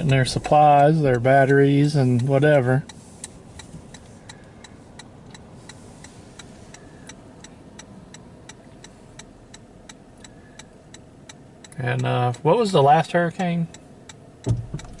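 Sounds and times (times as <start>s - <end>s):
low cabin road noise: 0.0s - 15.0s
turn-signal relay clicking: 13.7s - 15.0s.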